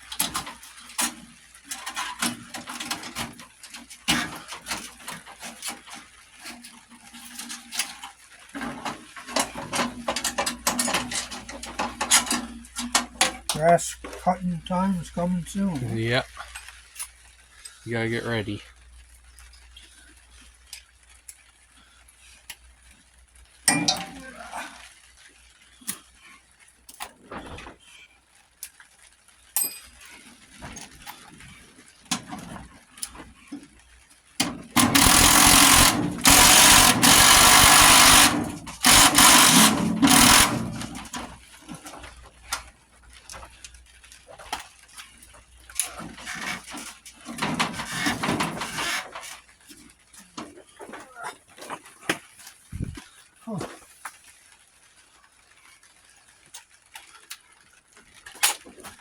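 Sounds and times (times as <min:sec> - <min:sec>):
power tool running: 0:34.7 - 0:41.3.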